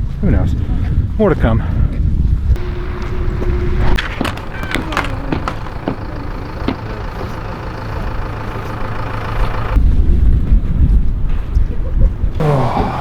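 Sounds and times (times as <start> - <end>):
vehicle engine running: 2.6 - 11.2.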